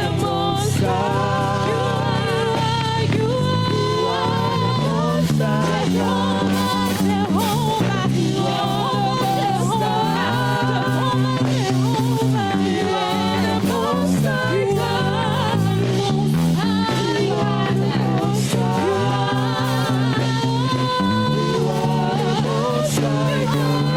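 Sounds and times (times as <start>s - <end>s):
band holding slow chords: 0.0s - 23.9s
person singing: 0.0s - 23.9s.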